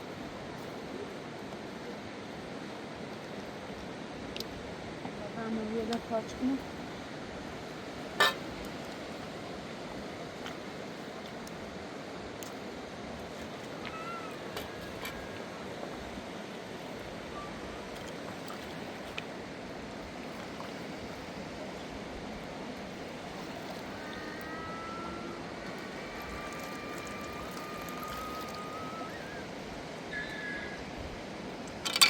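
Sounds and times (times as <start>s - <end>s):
river rushing: 6.6s - 32.0s
faint thin high tones: 24.0s - 29.4s.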